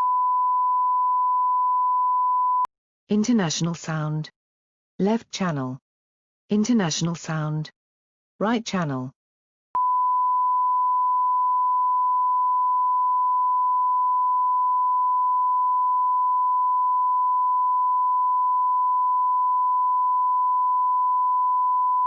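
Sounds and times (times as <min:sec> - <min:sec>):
pure test tone: 0:09.8 - 0:22.0.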